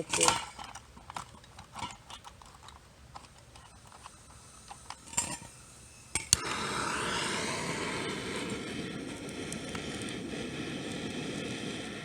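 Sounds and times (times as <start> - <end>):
forge flame hissing: 3.1 - 12.0.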